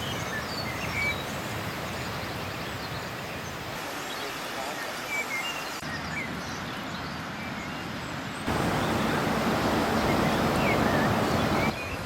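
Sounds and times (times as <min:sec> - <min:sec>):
surf rushing against rocks: 0:08.5 - 0:11.7.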